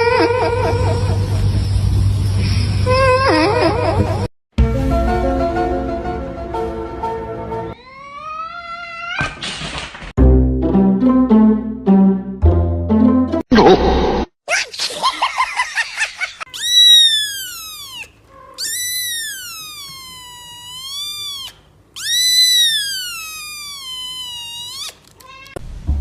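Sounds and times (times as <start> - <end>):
cat yowling: 7.8 - 9.4, 16.4 - 25.6.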